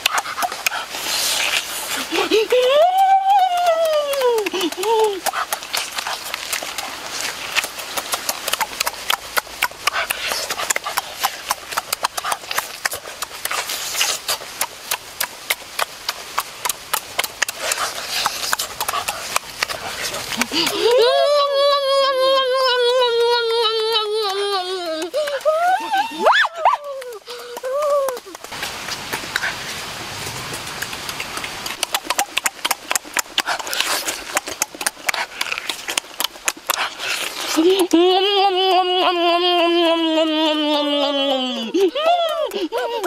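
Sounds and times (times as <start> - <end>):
steady hiss: 0.0 - 2.8
rapid irregular clicks: 0.0 - 21.0, 22.5 - 29.5, 30.2 - 43.0
chewing and lip-smacking: 0.0 - 21.2, 22.4 - 43.0.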